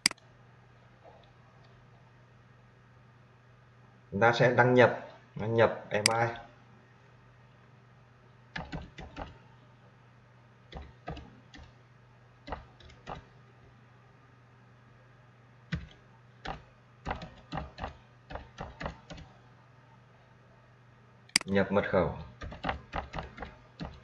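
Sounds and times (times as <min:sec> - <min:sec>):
faint low hum: 0:00.0 - 0:24.0
computer keyboard typing: 0:08.6 - 0:09.4, 0:10.7 - 0:11.7, 0:12.5 - 0:13.3, 0:15.7 - 0:19.3, 0:22.4 - 0:24.0.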